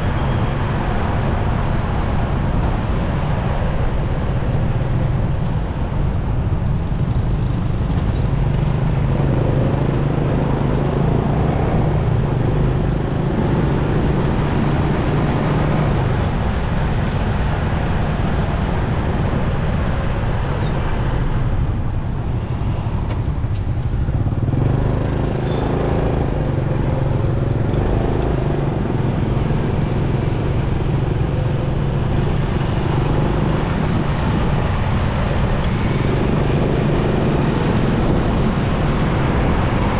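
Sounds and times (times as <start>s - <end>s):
road and wind noise: 0.0s - 39.9s
motorcycle engine running: 5.4s - 13.8s, 21.6s - 39.8s.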